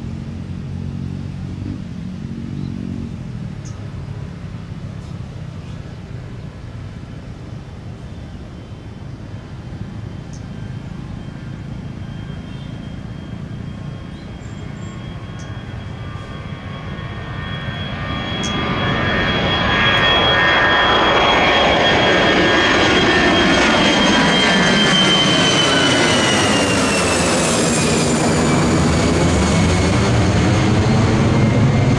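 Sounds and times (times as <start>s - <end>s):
high steady whine: 0.0s - 31.9s
jet engines rumbling: 0.0s - 31.9s.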